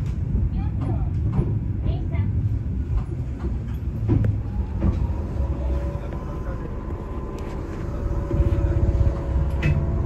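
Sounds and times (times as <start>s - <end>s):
train rattle: 0.0s - 10.0s
train rumbling: 0.0s - 10.0s
faint whine: 4.3s - 10.0s.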